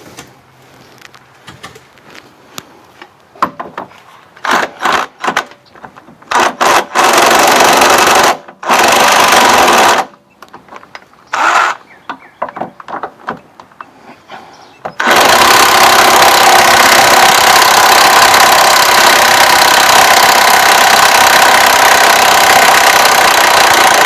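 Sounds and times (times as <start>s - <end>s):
power tool driving bolt: 4.4s - 11.8s, 14.8s - 24.0s.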